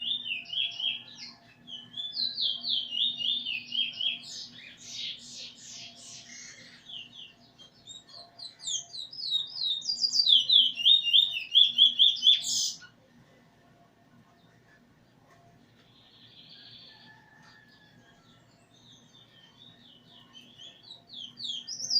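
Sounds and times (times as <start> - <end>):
recorded tutor birdsong: 0.0 - 21.9
songbird chirping and trilling: 0.0 - 21.9.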